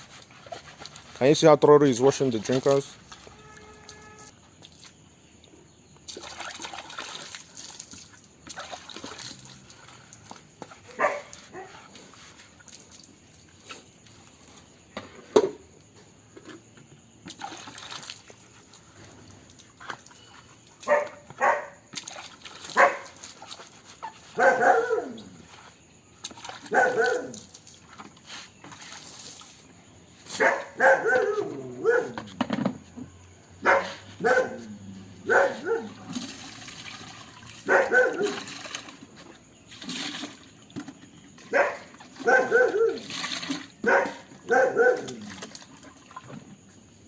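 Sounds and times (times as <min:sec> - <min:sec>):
water splashing faintly: 0:00.0 - 0:05.0, 0:06.0 - 0:14.6
dog barking: 0:10.9 - 0:11.8, 0:20.8 - 0:21.8, 0:22.8 - 0:23.2, 0:24.4 - 0:25.3, 0:26.7 - 0:27.4, 0:30.3 - 0:32.2, 0:33.6 - 0:36.0, 0:37.6 - 0:38.4, 0:41.5 - 0:43.0, 0:43.8 - 0:45.2.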